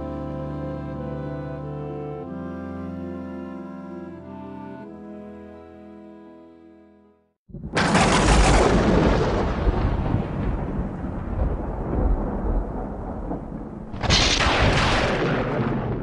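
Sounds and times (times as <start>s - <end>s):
loud booms with rumbling: 7.5s - 16.0s.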